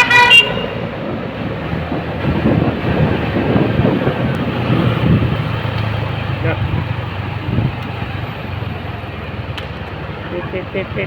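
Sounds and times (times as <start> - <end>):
wind on microphone: 0.0 - 8.7
road rumble: 0.0 - 11.0.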